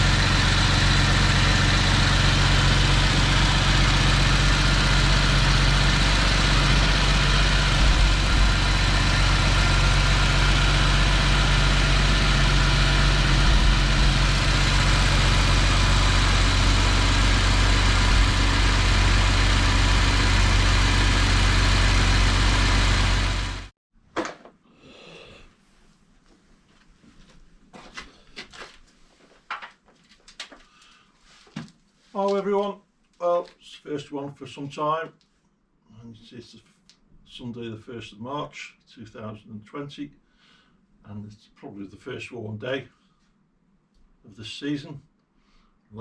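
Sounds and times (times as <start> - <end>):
car engine idling: 0.0 - 23.7.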